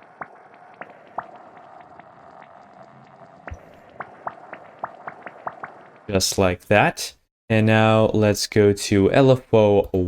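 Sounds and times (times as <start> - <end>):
droplet-like synth clicks: 0.0 - 6.2.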